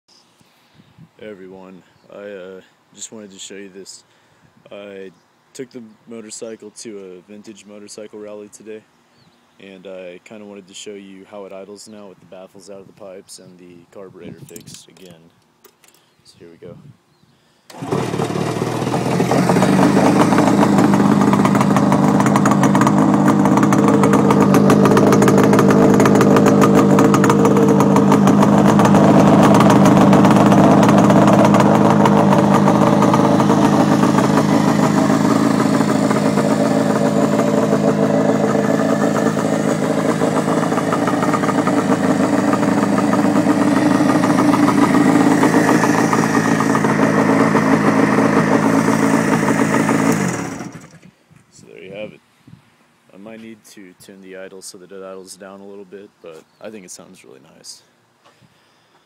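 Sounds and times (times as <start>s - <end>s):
two-stroke motorcycle engine idling: 17.7s - 51.0s.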